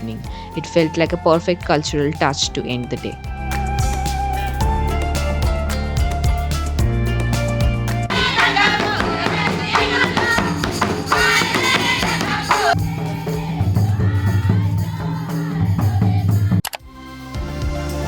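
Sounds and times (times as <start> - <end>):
jingling rattling percussion: 0.0 - 16.6
instrumental music with strong bass: 1.7 - 10.0, 16.8 - 18.0
group of voices singing: 8.1 - 18.0.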